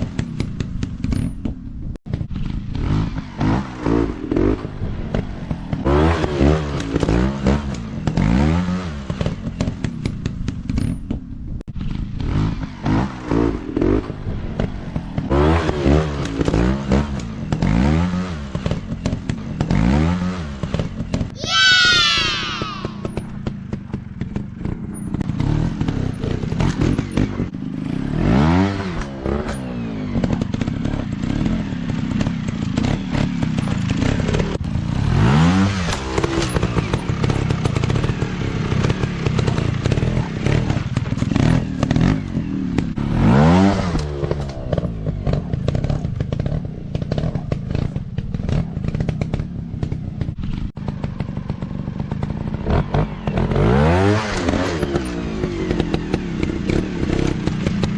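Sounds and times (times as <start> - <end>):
dirt bike engine revving: 11.8 - 23.3, 24.2 - 49.4, 52.2 - 57.9.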